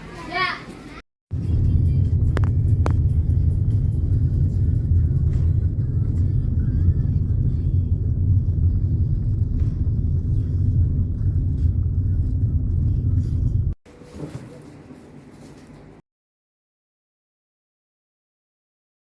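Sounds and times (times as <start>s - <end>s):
vehicle rumble from on board: 1.3s - 13.8s.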